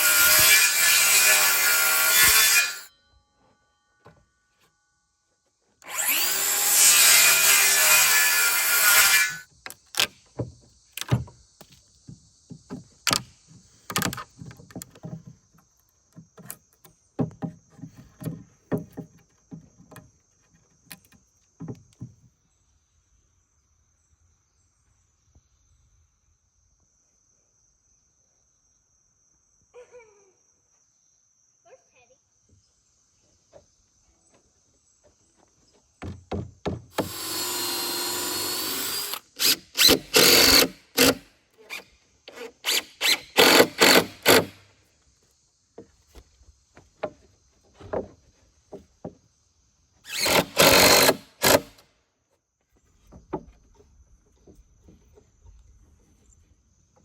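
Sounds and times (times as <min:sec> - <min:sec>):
power tool on wood: 0:00.0 - 0:02.9, 0:05.8 - 0:10.1, 0:36.9 - 0:44.6, 0:50.1 - 0:51.8
knocks of wood and tools handled: 0:09.6 - 0:22.3, 0:35.0 - 0:37.4, 0:45.7 - 0:49.2, 0:52.6 - 0:57.0.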